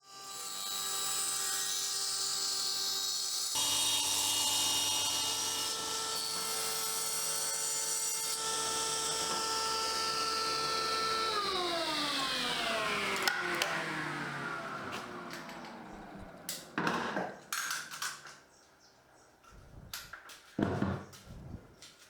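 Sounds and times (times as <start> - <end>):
power tool motor whine: 0.1 - 16.8.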